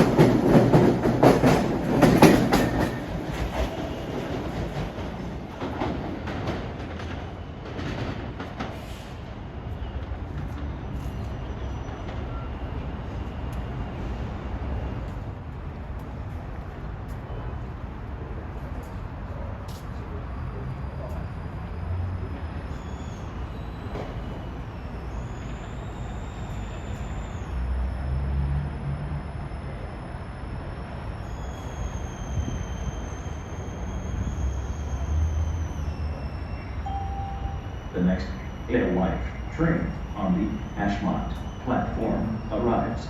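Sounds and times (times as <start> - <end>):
trains rumbling: 0.0 - 43.0
high-pitched squeals: 22.7 - 43.0.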